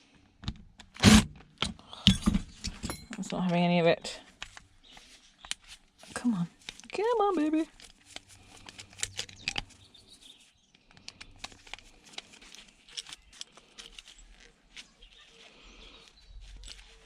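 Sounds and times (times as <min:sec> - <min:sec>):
tools clicking and scraping parts: 0:01.0 - 0:03.6, 0:10.8 - 0:14.8.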